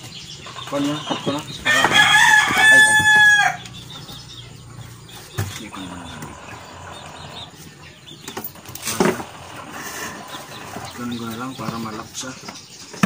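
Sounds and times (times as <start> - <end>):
rooster crowing: 1.6 - 3.8.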